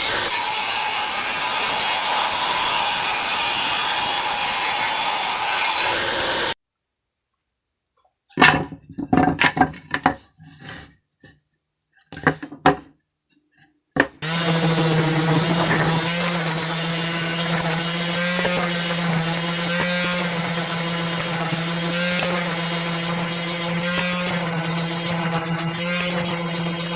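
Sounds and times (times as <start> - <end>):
power tool working wood: 0.0 - 6.6, 14.0 - 26.9
motor humming: 14.0 - 26.9.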